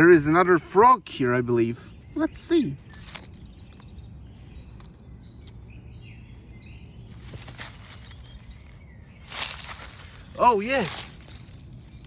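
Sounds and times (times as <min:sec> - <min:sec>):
distant bird chirps: 0:00.0 - 0:12.0
low wind rumble: 0:00.0 - 0:12.0.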